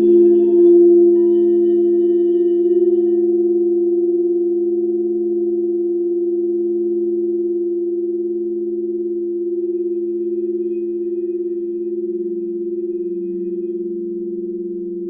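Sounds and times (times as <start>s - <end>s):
crystal singing bowls ringing: 0.0s - 4.1s, 9.5s - 15.0s.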